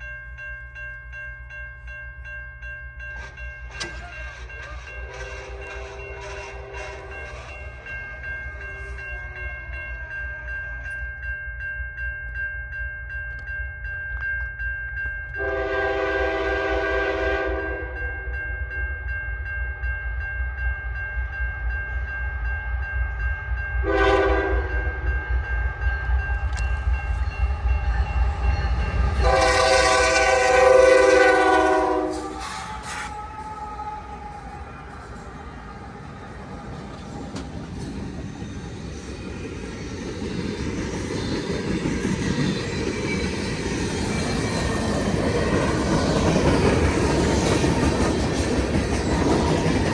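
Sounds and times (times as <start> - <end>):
locomotive rumble: 3.1 - 10.8
train air horn blasts: 5.0 - 7.3, 15.4 - 18.0, 23.8 - 24.9, 29.2 - 34.7.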